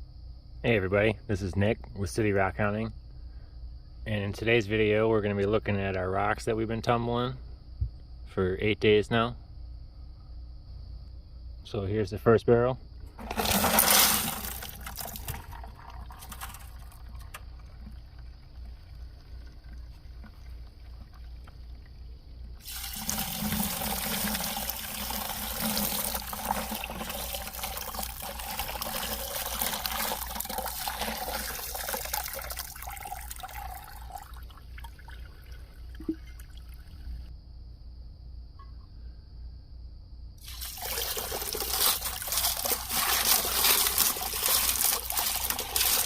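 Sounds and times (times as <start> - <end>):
water running: 13.1 - 36.9, 40.4 - 46.0.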